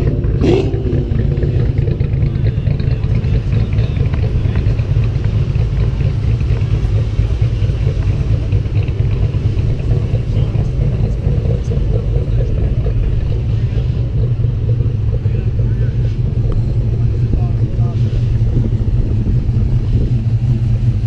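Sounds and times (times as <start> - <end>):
car engines idling: 0.0 - 21.0.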